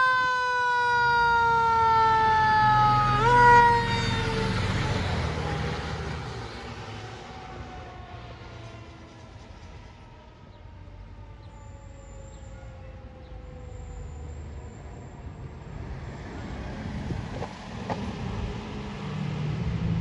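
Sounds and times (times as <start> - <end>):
fire truck siren winding down: 0.0 - 15.3
low rumble: 19.4 - 20.0.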